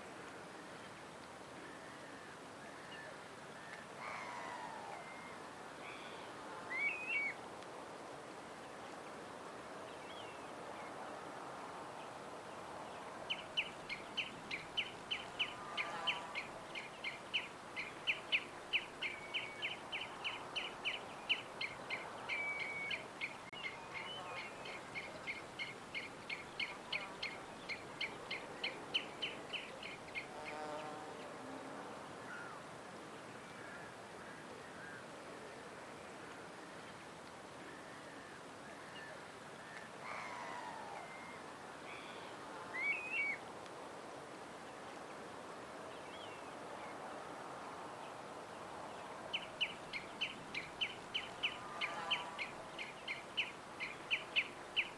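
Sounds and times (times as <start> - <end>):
background hiss: 0.0 - 54.9
songbirds chirping: 11.6 - 31.4, 47.8 - 54.9.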